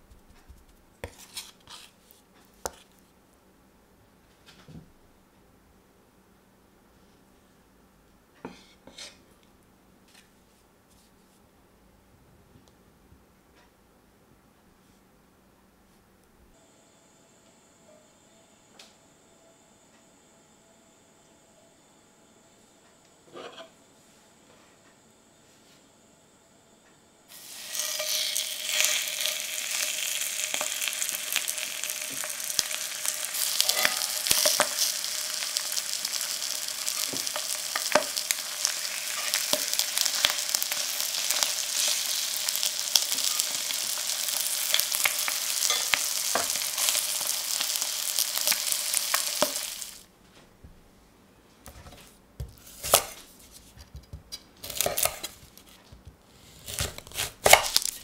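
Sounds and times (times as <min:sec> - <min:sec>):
chicken frying in oil: 0:27.3 - 0:50.0.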